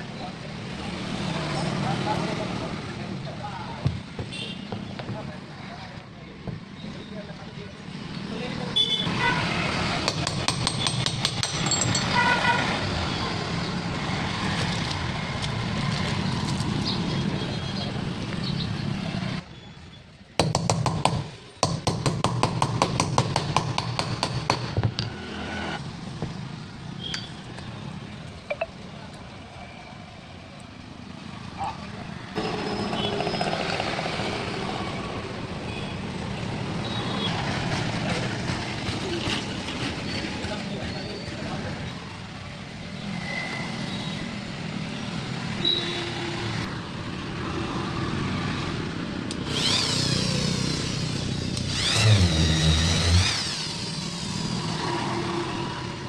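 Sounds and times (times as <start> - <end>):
road traffic rumble: 0.0 - 56.0
vehicle horn toot: 8.8 - 9.4
angle grinder motor running: 49.4 - 54.6.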